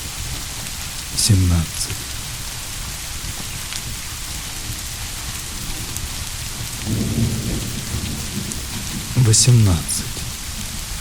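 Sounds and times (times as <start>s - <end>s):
steady rain falling: 0.0s - 11.0s
distant thunder rumble: 6.7s - 10.9s.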